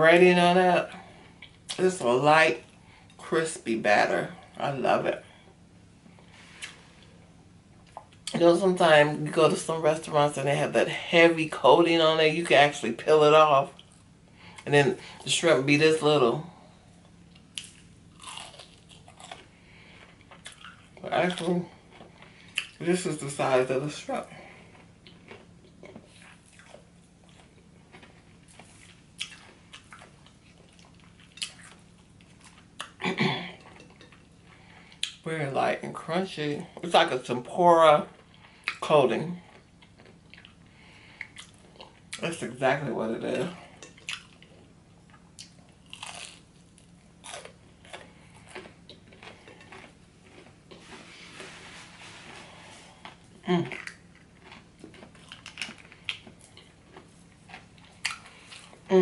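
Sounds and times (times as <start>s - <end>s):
chewing crispy fried food: 16.5s - 35.3s, 37.9s - 42.9s, 43.5s - 59.0s.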